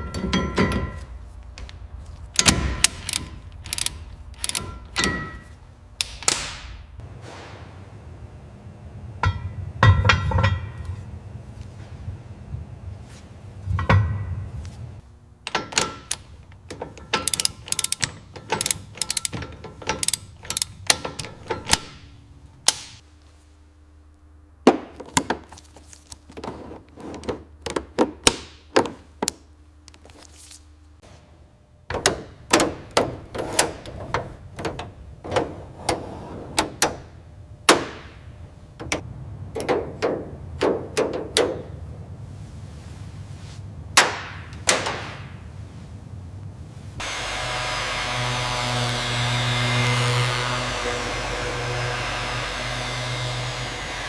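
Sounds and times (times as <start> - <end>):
hand tools clicking on metal: 2.4 - 5.4, 15.5 - 22.0.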